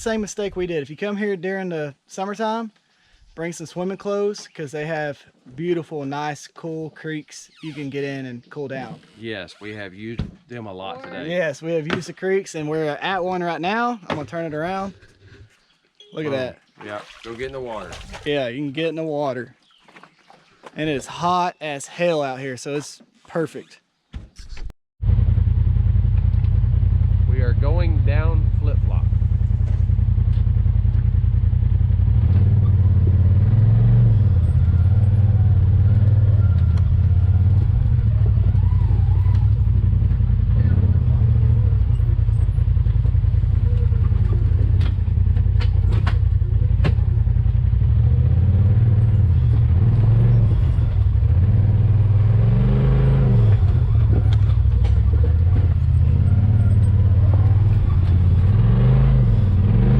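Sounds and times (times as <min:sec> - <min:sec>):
off-road vehicle engine running: 0:25.0 - 0:59.9.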